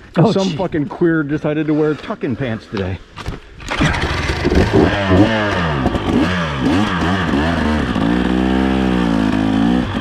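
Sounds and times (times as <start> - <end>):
dirt bike engine revving: 3.7 - 10.0.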